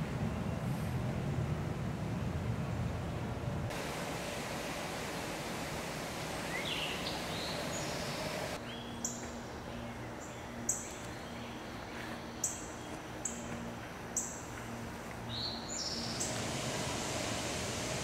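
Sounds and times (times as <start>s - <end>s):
birds chirping: 5.9s - 18.0s.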